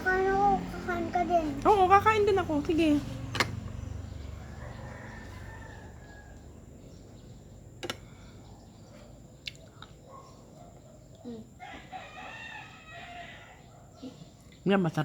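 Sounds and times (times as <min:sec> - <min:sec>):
distant rooster crowing: 0:03.7 - 0:07.6, 0:11.5 - 0:14.2.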